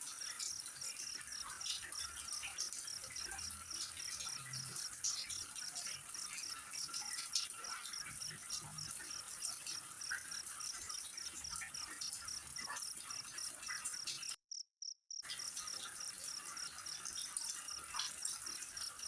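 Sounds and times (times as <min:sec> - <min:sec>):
insect chirping: 0:00.0 - 0:19.0.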